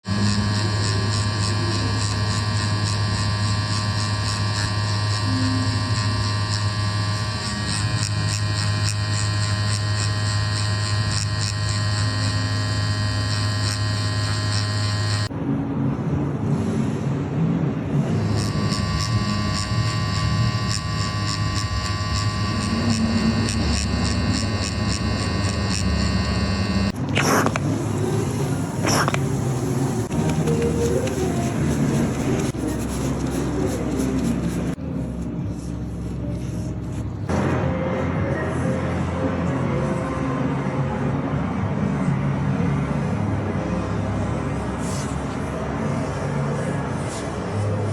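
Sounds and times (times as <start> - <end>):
tattoo machine buzzing: 0.0 - 15.3, 18.0 - 34.8
rough noisy machine sound: 0.0 - 15.5, 16.2 - 47.9.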